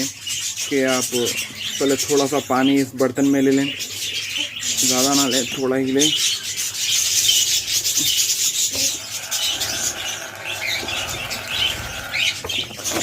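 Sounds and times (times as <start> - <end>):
budgies chirping and chattering: 0.0 - 13.0
dense rasping hiss: 8.7 - 12.6.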